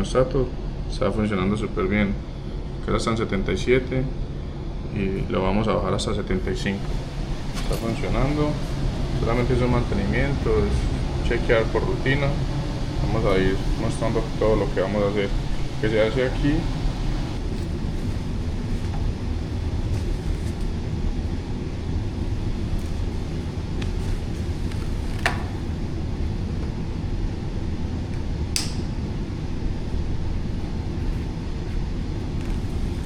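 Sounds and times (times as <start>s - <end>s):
air conditioner running: 0.0s - 33.0s
sharp clicks: 28.6s - 28.9s.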